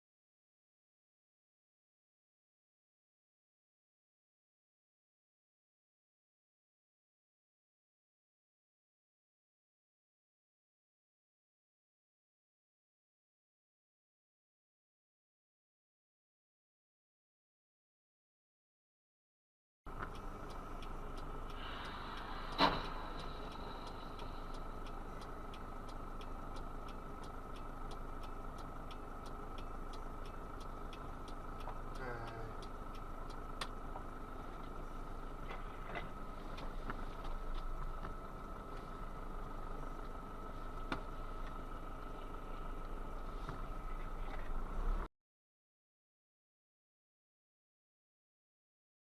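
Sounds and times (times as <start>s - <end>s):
vehicle and road noise: 19.9s - 45.1s.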